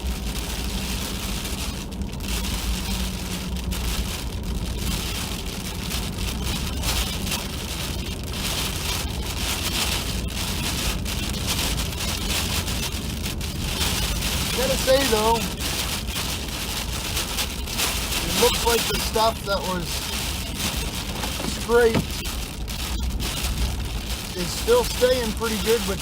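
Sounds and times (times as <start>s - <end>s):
ice pellets rattling on truck: 13.6s - 15.7s, 17.7s - 22.4s, 23.5s - 26.0s
truck engine humming: 17.0s - 23.0s.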